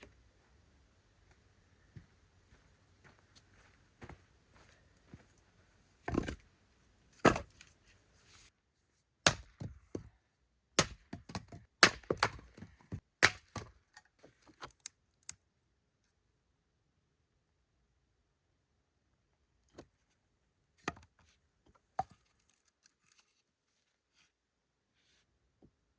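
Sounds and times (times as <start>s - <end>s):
wood cracking and knocking: 10.8s - 13.9s.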